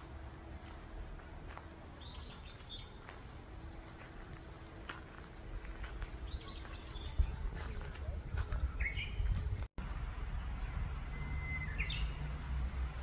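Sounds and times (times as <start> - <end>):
low steady rumble: 0.0 - 13.0
birds chirping and whistling: 1.4 - 4.6, 5.5 - 7.9, 8.5 - 9.5, 10.6 - 12.3.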